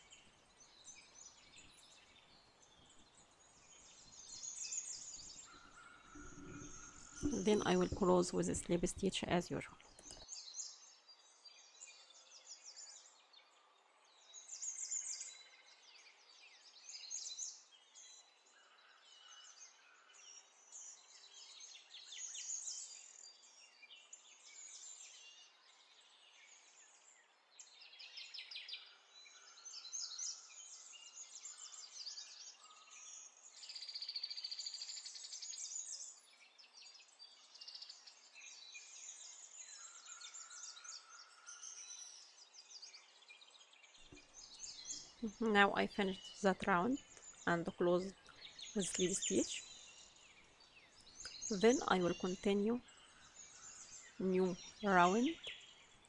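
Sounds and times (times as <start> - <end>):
faint bird chirps: 0.0 - 56.0
buzzy bird trill: 51.3 - 52.8, 54.2 - 55.5.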